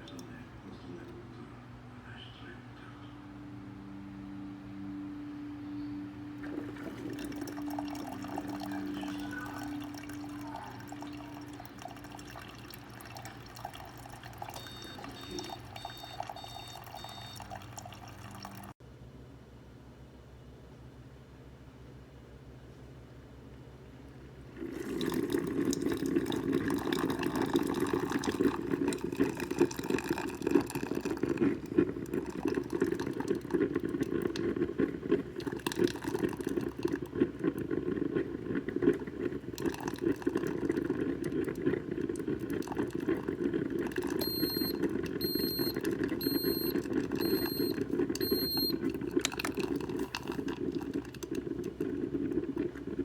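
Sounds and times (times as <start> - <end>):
coffee maker gurgling: 0.0 - 1.2, 6.4 - 18.8, 24.3 - 53.0
short electronic beeps: 14.6 - 17.5, 44.2 - 48.8.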